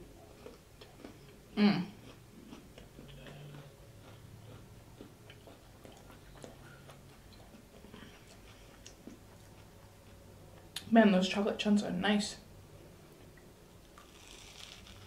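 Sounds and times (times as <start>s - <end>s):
chewing crunchy cereal bar: 0.4s - 10.2s, 13.8s - 15.0s.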